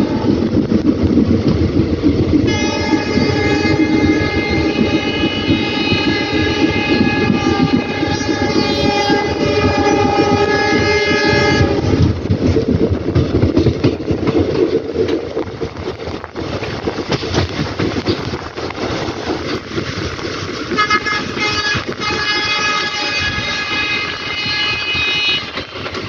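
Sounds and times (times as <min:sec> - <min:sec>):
wheels clattering over rails: 0:00.0 - 0:26.0
train horn: 0:02.5 - 0:12.1, 0:20.7 - 0:25.8.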